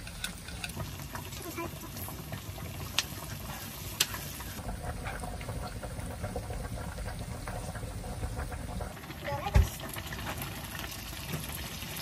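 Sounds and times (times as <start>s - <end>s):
chopsticks stirring in a pan: 0.0s - 5.4s
garlic and onion sizzling in oil: 0.0s - 12.0s.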